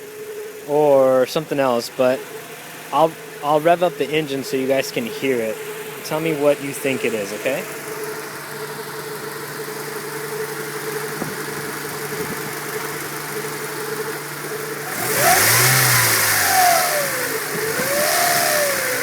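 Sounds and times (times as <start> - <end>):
car engine idling with whine: 0.0 - 19.0
engine revving: 0.7 - 19.0.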